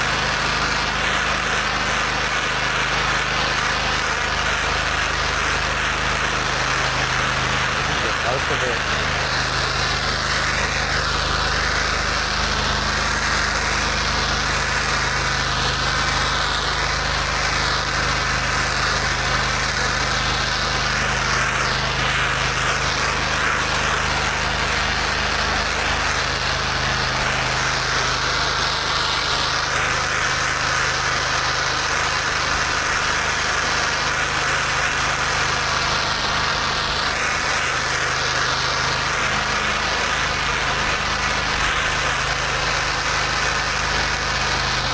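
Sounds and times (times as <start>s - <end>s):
high-pressure water spraying: 0.0s - 44.9s
pressure washer engine running: 0.0s - 44.9s.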